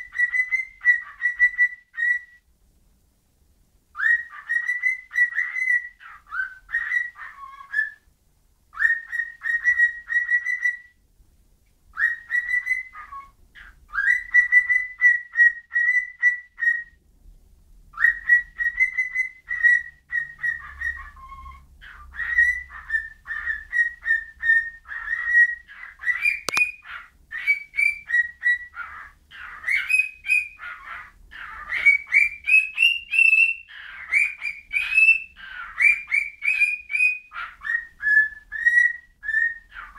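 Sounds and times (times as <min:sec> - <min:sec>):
pet bird whistling: 0:00.0 - 0:02.4, 0:04.0 - 0:08.0, 0:08.8 - 0:11.0, 0:12.0 - 0:17.0, 0:18.0 - 0:39.9
sharp click: 0:26.4 - 0:26.7.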